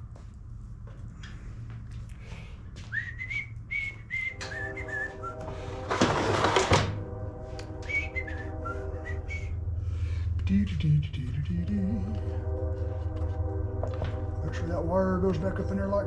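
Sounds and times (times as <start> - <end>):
man whistling a tune: 2.8 - 5.5, 7.7 - 9.6.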